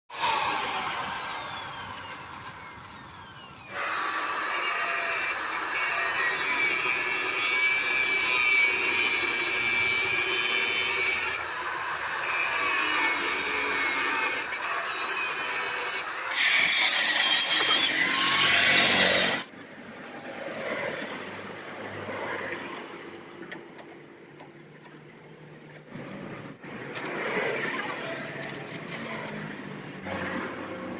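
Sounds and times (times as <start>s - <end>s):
angle grinder cutting metal: 0.1s - 19.5s.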